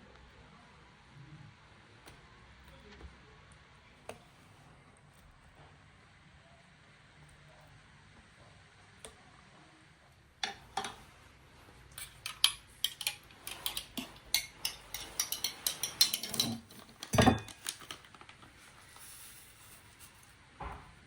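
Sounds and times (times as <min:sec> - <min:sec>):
utensils and dishes clinking: 0:10.4 - 0:11.1, 0:11.9 - 0:18.1.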